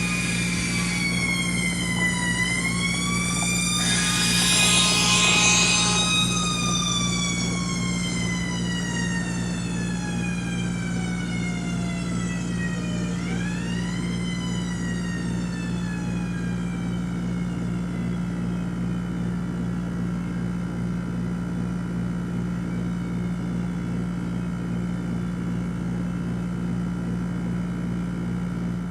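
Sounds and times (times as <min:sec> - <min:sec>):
steady low hum: 0:00.0 - 0:11.3
mechanical siren winding down: 0:00.0 - 0:18.4.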